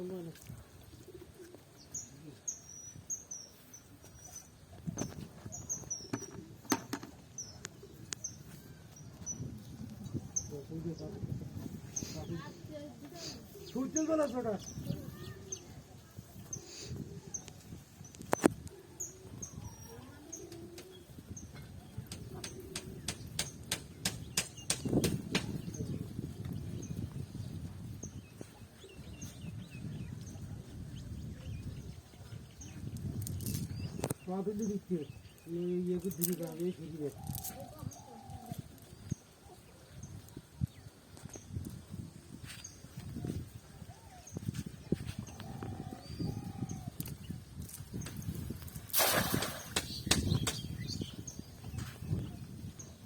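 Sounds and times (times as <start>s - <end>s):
small birds chirping: 0.0s - 53.0s
sharp clicks or knocks: 49.4s - 50.6s.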